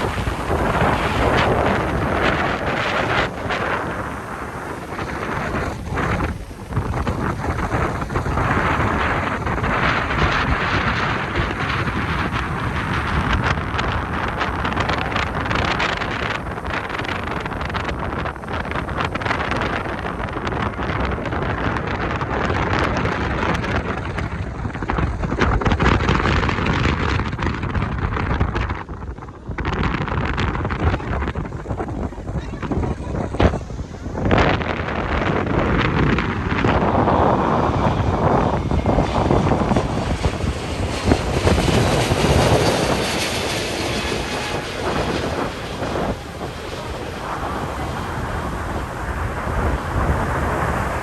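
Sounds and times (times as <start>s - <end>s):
heavy surf rushing: 0.0s - 21.2s, 34.6s - 51.0s
jet engines roaring overhead: 0.0s - 24.8s, 31.8s - 51.0s
wind buffeting microphone: 0.0s - 51.0s.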